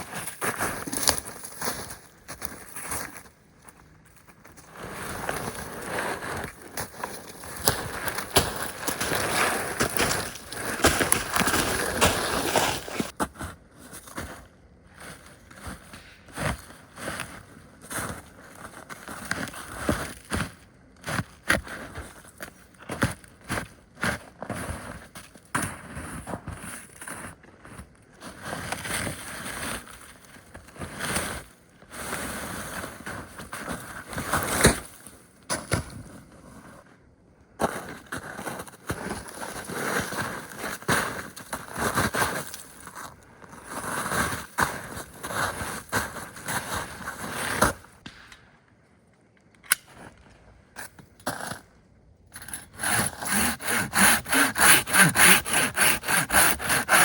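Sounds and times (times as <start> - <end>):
wood being scraped: 4.7 - 13.1, 52.4 - 57.0
saw cutting wood: 7.6 - 13.1, 52.4 - 57.0.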